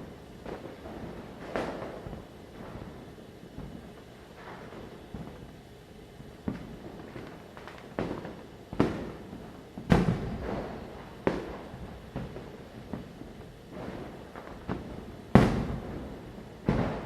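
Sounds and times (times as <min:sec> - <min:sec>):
distant firecracker rumble: 0:06.4 - 0:17.0
firecrackers banging: 0:13.7 - 0:17.0.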